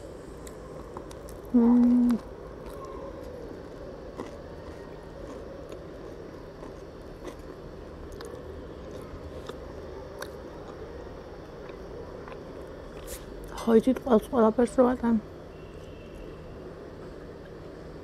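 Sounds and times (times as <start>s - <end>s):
person chewing crusty bread: 0.2s - 13.6s.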